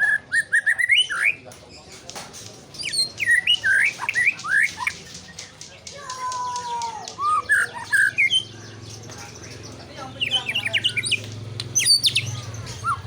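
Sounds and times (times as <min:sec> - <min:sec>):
bird singing whistled notes: 0:02.8 - 0:05.9, 0:06.5 - 0:13.0.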